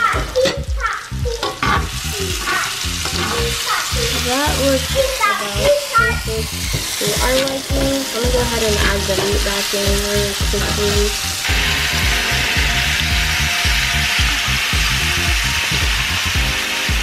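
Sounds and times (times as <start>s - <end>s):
background music with steady beat: 0.0s - 5.2s, 6.5s - 17.0s
vegetables sizzling in a skillet: 0.0s - 17.0s
metal tongs tossing food: 0.4s - 5.8s.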